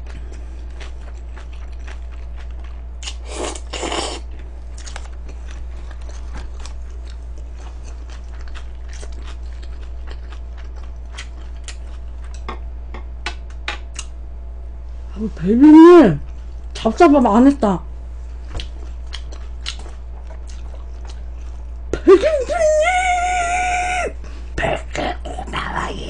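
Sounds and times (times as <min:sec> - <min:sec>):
steady low hum: 0:00.0 - 0:26.0
wet mouth clicks chewing: 0:18.6 - 0:21.3.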